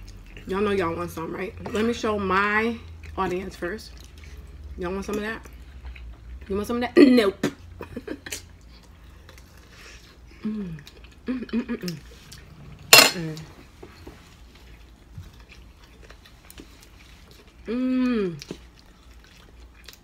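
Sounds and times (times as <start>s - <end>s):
cutlery and dishes clinking: 12.9s - 13.4s.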